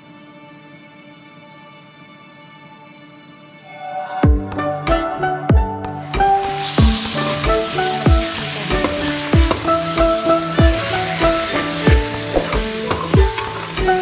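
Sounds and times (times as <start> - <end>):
background music with beat: 3.8 - 14.0
chicken sizzling in a pan: 6.0 - 14.0.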